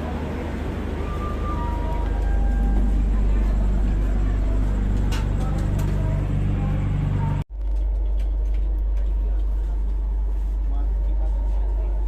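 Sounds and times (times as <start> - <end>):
standing train rumble and hum: 0.0 - 12.0.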